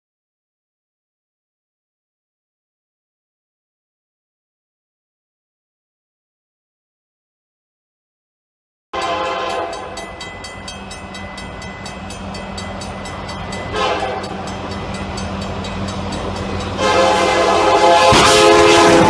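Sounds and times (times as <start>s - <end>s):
loud horn chord: 9.0s - 10.0s, 13.7s - 14.3s, 16.7s - 19.0s.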